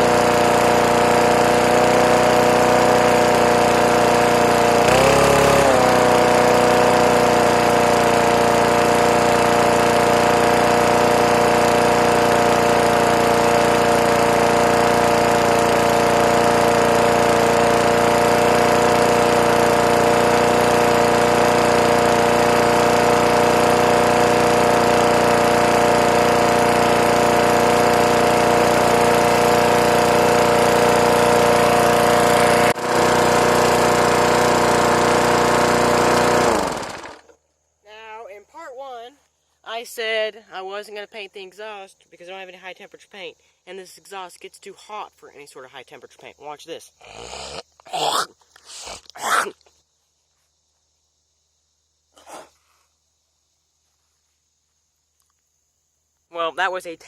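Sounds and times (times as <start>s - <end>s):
lawn mower engine running: 0.0s - 37.4s.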